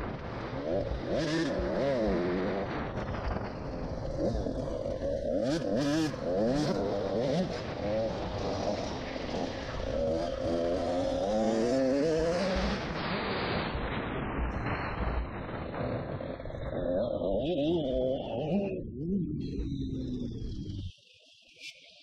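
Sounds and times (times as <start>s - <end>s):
rushing noise: 0.0s - 18.9s
motocross bike engine revving: 0.3s - 3.1s, 4.0s - 13.2s, 16.7s - 19.4s.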